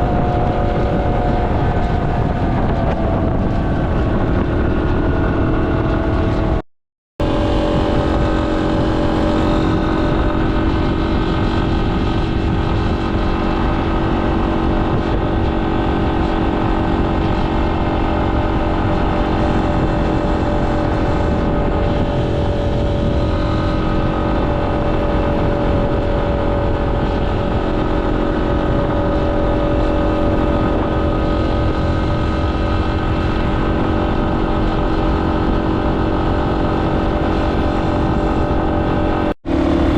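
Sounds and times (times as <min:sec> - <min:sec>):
motorcycle engine cruising: 0:00.0 - 0:06.6, 0:07.2 - 0:39.9
wind and road noise: 0:00.0 - 0:06.6, 0:07.2 - 0:39.9.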